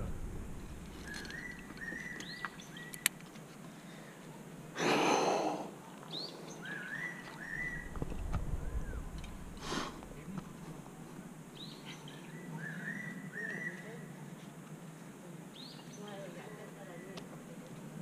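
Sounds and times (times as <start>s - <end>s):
loud rush of air: 0.0s - 1.7s, 7.6s - 11.3s
small sharp clicks: 1.0s - 3.4s
bird whistling a phrase: 12.6s - 13.9s.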